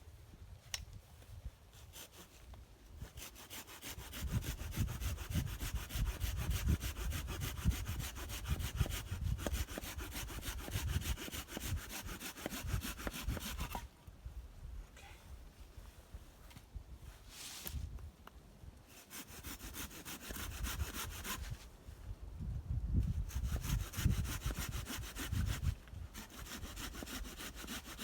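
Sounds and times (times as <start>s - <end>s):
hand saw cutting wood: 1.8s - 13.9s, 18.9s - 21.7s, 23.0s - 28.0s.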